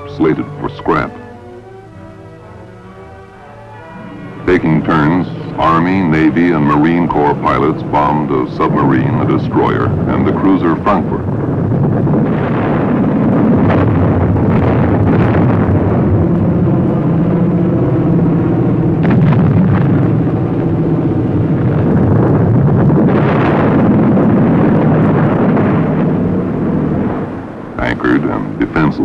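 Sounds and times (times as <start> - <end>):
propeller aircraft engines droning: 0.0 - 12.2, 24.1 - 29.0
bomb explosions: 0.0 - 29.0.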